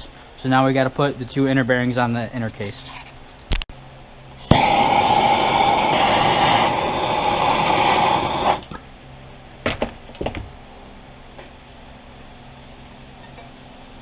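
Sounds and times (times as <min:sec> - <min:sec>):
gas torch hissing: 0:04.4 - 0:08.8
gas torch ignition click: 0:04.4 - 0:08.8.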